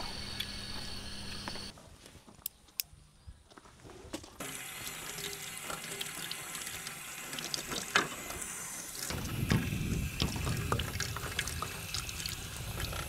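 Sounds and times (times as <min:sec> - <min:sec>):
tap water running into sink: 0:04.4 - 0:13.0
water splash: 0:09.0 - 0:13.0.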